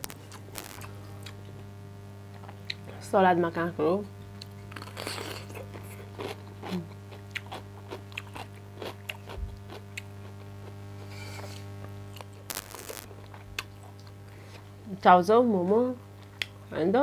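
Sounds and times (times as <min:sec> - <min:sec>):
burst of noise: 0:00.0 - 0:01.1, 0:12.4 - 0:13.1
steady low hum: 0:00.0 - 0:17.0
person chewing food: 0:04.4 - 0:12.4, 0:13.1 - 0:14.2.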